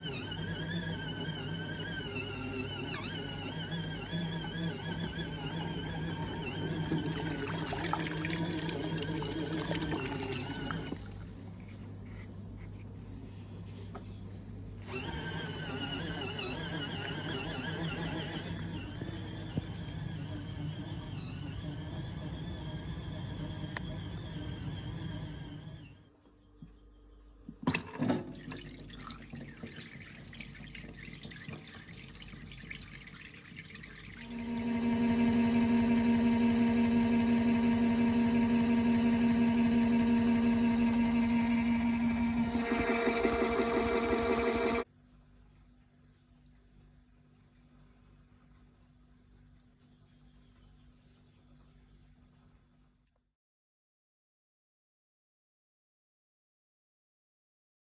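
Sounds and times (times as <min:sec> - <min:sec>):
washing machine motor hum: 0:00.0 - 0:13.4, 0:14.7 - 0:44.9
water sloshing in tub: 0:06.8 - 0:11.6, 0:27.8 - 0:34.4.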